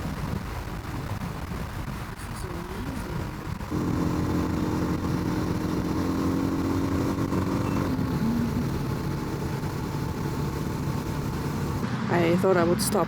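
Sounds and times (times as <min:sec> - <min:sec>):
wind noise: 0:00.0 - 0:11.9
motorcycle engine cruising: 0:02.9 - 0:12.3.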